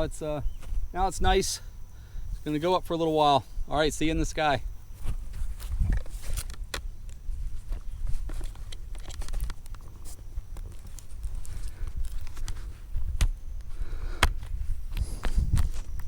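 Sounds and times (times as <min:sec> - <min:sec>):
gear rustling and clicking: 0:07.6 - 0:12.8.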